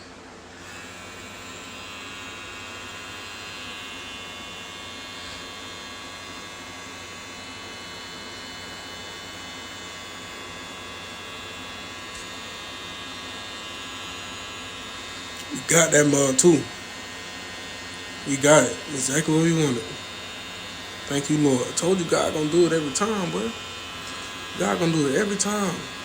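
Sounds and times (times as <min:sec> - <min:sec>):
electric hair clippers buzzing: 0:00.0 - 0:26.0.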